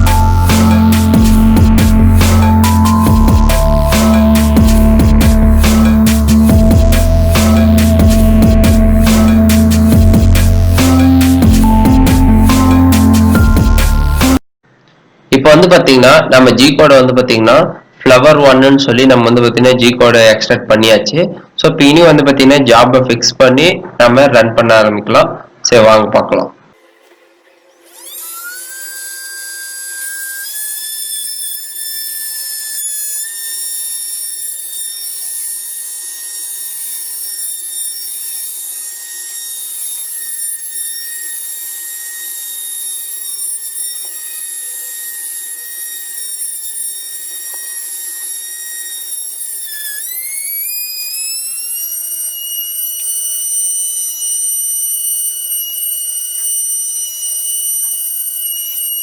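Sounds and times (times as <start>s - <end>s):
spindle motor whining: 0.0s - 14.4s, 26.8s - 59.0s.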